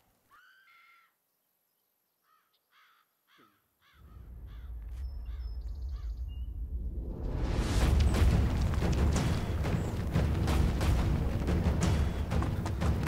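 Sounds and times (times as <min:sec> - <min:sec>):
bird calling: 0:00.3 - 0:01.2
deep low rumble: 0:04.0 - 0:12.9.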